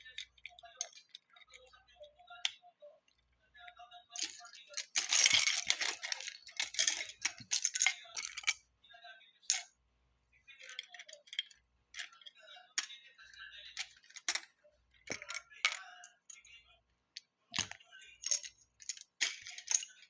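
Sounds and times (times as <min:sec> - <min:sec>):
plastic bricks rattling and clicking: 0:04.1 - 0:08.6, 0:17.6 - 0:20.0.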